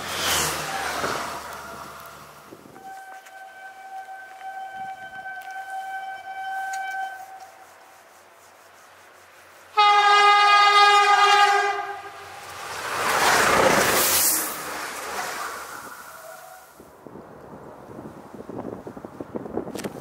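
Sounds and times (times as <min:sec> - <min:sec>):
passing train hiss: 0:00.0 - 0:17.0
high train horn note: 0:02.8 - 0:07.7, 0:09.7 - 0:12.4
two-note train horn blast: 0:02.8 - 0:07.7, 0:09.8 - 0:12.4.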